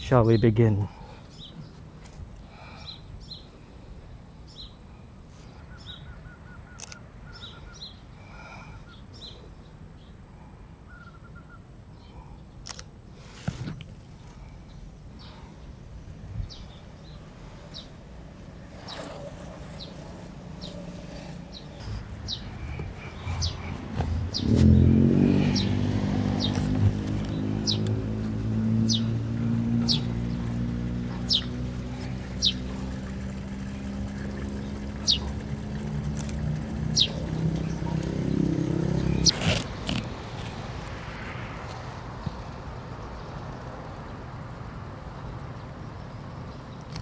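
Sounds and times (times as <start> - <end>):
street traffic rumble: 0.0 - 47.0
vehicle engine running: 16.5 - 47.0
small bird chirping: 18.8 - 28.0, 28.8 - 29.2, 29.8 - 33.0, 33.7 - 40.1.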